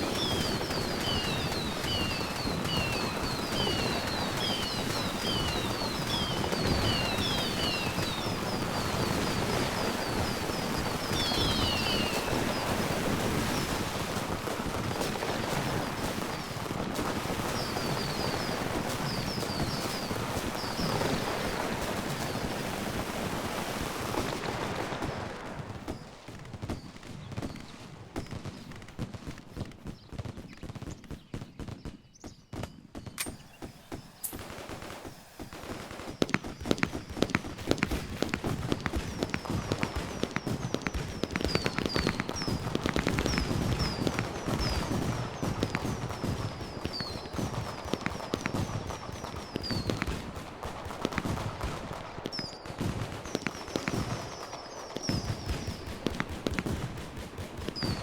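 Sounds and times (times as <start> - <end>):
fireworks crackling: 0.0 - 31.0, 33.2 - 58.0
loud firework bangs: 0.0 - 31.8, 32.9 - 58.0.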